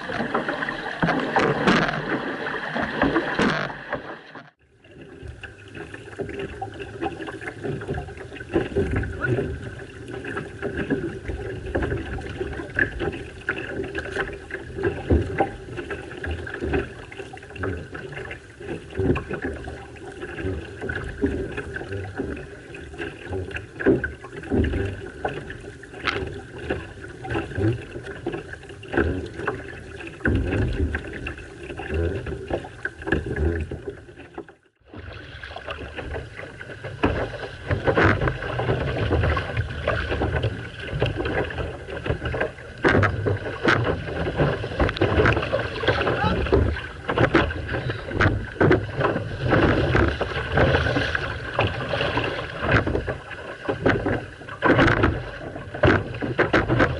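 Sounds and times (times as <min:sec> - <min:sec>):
water rushing and splashing: 0:00.0 - 0:56.9
paddle stroke knocks: 0:35.8 - 0:56.9.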